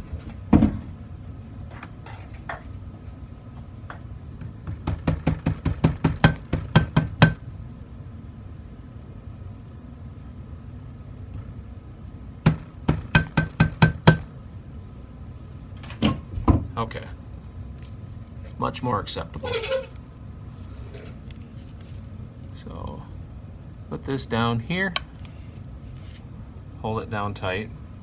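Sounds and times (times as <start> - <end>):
small hammer tapping metal: 12.5 - 14.3.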